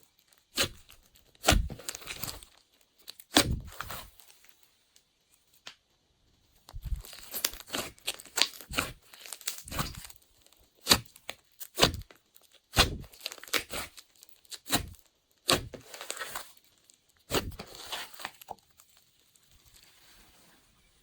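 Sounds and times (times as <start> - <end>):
slime squeezed by hand: 8.5 - 9.0, 9.7 - 10.1, 12.7 - 13.9.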